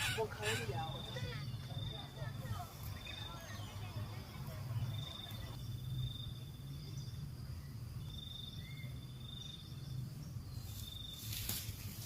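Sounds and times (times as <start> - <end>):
insect trilling: 0.0 - 2.2.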